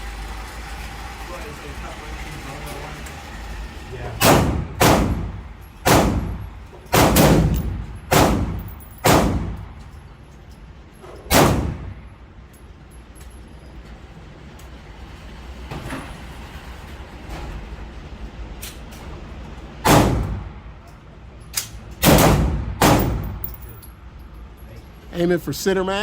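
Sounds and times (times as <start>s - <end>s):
rifle shots with echo: 4.2s - 5.3s, 5.9s - 9.6s, 11.3s - 11.9s, 22.0s - 23.5s.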